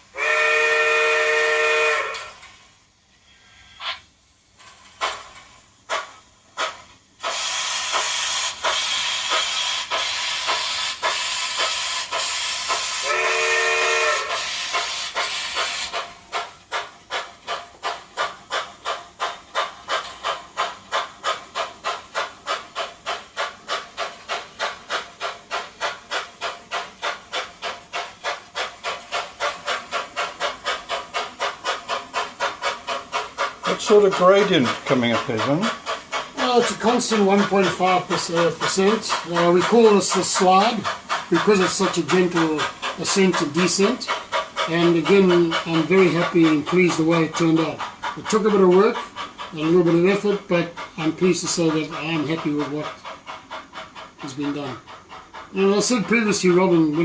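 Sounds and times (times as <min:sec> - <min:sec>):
hiss of steam: 0:00.0 - 0:57.0
steam locomotive chuffing: 0:00.0 - 0:57.0
steam whistle blast: 0:00.1 - 0:02.4, 0:12.9 - 0:14.6.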